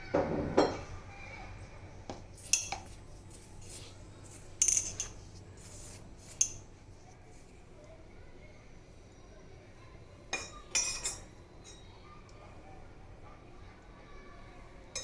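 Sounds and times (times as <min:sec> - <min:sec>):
metal utensils clinking on dishes: 0:02.4 - 0:03.8, 0:04.6 - 0:05.2, 0:10.3 - 0:11.8.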